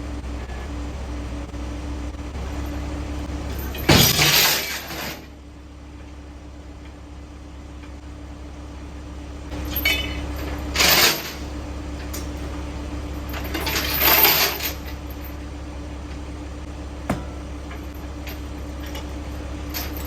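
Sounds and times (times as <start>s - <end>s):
machinery humming: 9.5s - 20.0s
steel chains clinking and rattling: 9.6s - 11.5s, 13.1s - 15.4s.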